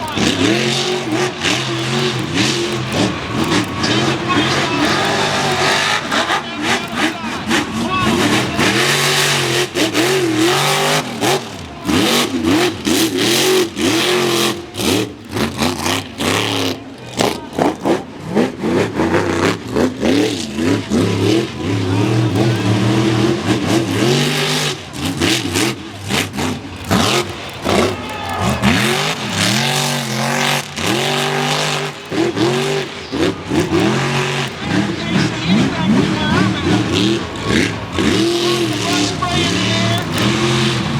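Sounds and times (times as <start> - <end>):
truck engine revving hard: 0.0 - 40.9.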